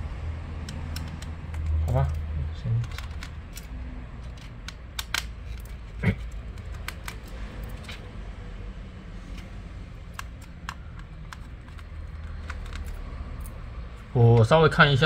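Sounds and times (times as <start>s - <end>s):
tools clicking and tapping: 0.6s - 8.1s, 9.3s - 13.6s.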